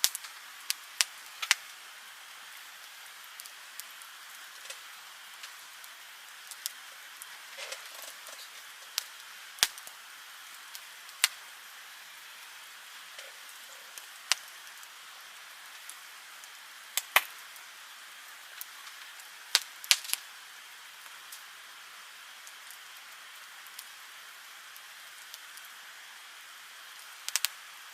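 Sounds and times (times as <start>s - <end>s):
logs popping: 0.0s - 1.8s, 3.4s - 11.5s, 12.9s - 14.9s, 16.9s - 17.4s
campfire hissing: 0.0s - 27.9s.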